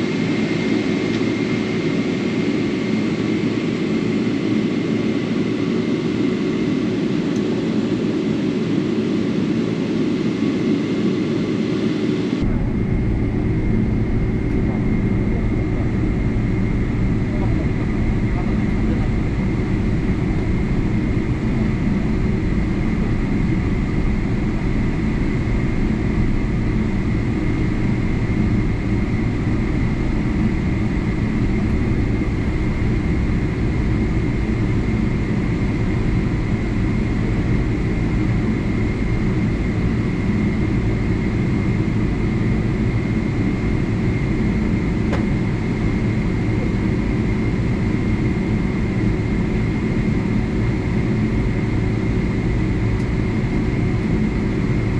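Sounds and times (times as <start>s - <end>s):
airliner cabin engine rumble: 0.0s - 54.9s
thin steady whine: 12.2s - 54.9s.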